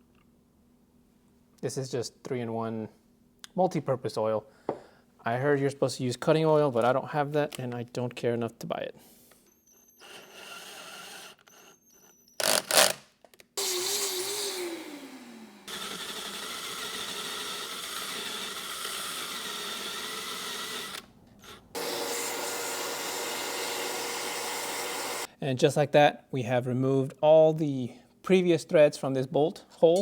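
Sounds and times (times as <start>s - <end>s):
electric drill boring metal: 9.9s - 12.9s, 13.6s - 25.3s.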